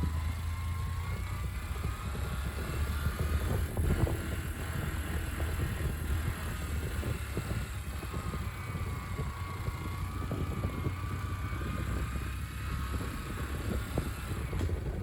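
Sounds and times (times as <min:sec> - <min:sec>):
motorcycle engine rumble: 0:00.0 - 0:15.0
road and wind noise: 0:00.0 - 0:15.0.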